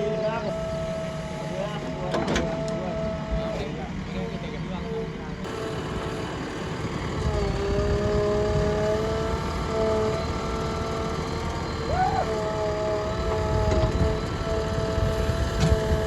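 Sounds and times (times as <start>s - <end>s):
diesel machinery rumble: 0.0s - 16.0s
steady whine: 5.3s - 16.0s.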